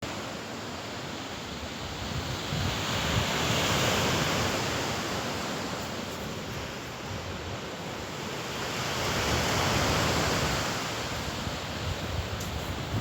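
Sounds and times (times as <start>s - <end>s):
surf washing onto shore: 0.0s - 13.0s
wind buffeting microphone: 1.5s - 7.8s, 8.6s - 13.0s.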